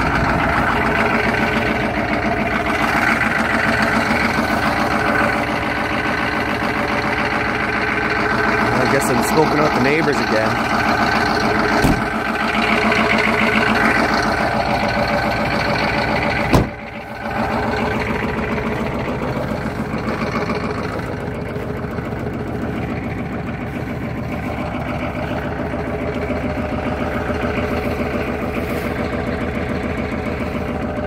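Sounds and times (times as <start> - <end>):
diesel engine idling: 0.0 - 31.0
sharp engine knock: 11.0 - 12.3, 16.3 - 16.8.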